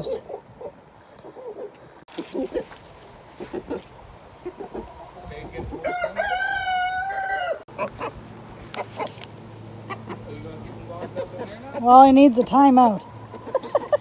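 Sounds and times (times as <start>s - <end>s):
chickens clucking: 0.0s - 11.9s, 13.0s - 14.0s
rooster crowing: 5.8s - 7.7s.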